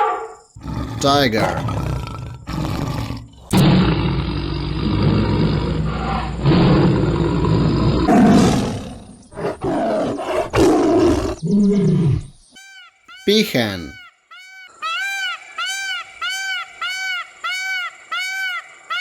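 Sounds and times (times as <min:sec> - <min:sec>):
tiger roaring and growling: 0:00.6 - 0:12.4.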